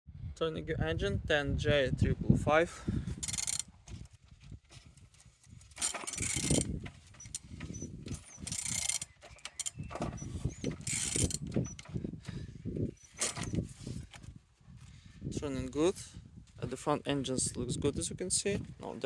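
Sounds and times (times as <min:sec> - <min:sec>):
pulleys squeaking: 0:03.2 - 0:03.6, 0:05.8 - 0:12.0, 0:12.9 - 0:13.8
ratchet wrench clicks: 0:03.2 - 0:03.6, 0:05.8 - 0:09.8, 0:10.4 - 0:11.8.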